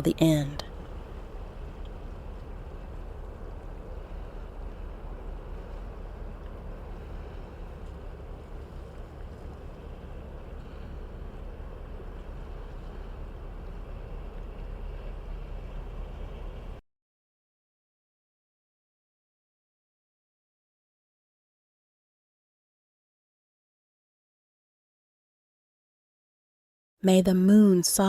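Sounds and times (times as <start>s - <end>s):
steady wind blowing: 0.0s - 16.8s.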